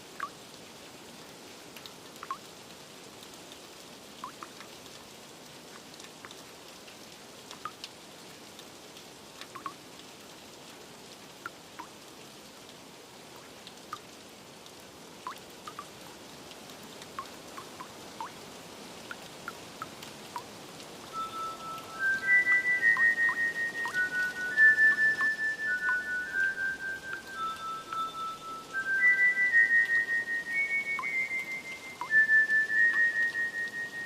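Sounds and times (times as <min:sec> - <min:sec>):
steady rain: 0:00.0 - 0:34.0
water drips plinking: 0:00.2 - 0:00.4, 0:01.8 - 0:02.5, 0:04.2 - 0:04.8, 0:07.5 - 0:07.9, 0:09.4 - 0:09.8, 0:11.4 - 0:12.0, 0:13.3 - 0:14.1, 0:15.2 - 0:34.0
soft ambient music tones: 0:21.0 - 0:34.0.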